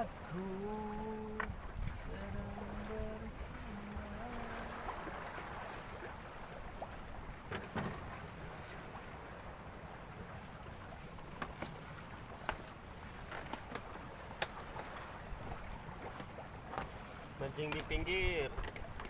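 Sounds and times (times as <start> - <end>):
low rumble on microphone: 0.0 - 5.3
water noise: 0.0 - 19.0
wind: 0.0 - 19.0.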